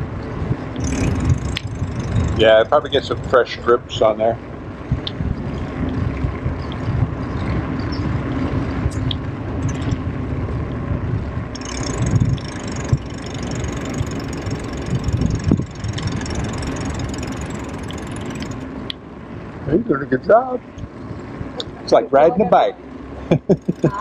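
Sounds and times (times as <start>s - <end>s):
bicycle tyre noise: 0.0s - 18.9s, 23.5s - 24.0s
wind rumble: 0.0s - 24.0s
thin high whine: 0.8s - 3.4s, 11.5s - 19.0s.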